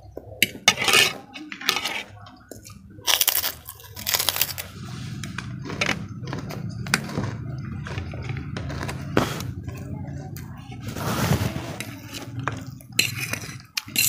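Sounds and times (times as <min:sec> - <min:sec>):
crunching and chewing: 0:02.5 - 0:10.4.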